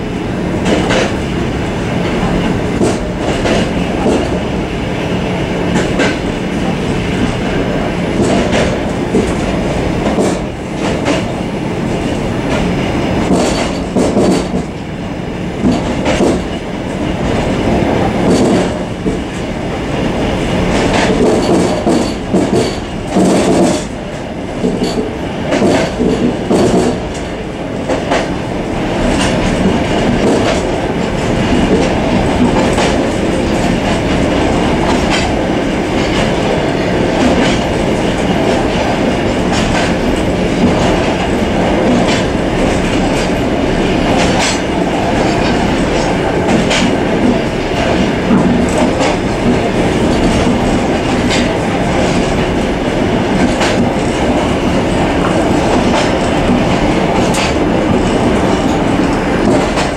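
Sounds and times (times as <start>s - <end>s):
train rumble and rattle: 0.0s - 59.9s
wheels clacking over rail joints: 12.5s - 14.7s, 20.7s - 28.4s, 29.0s - 59.9s.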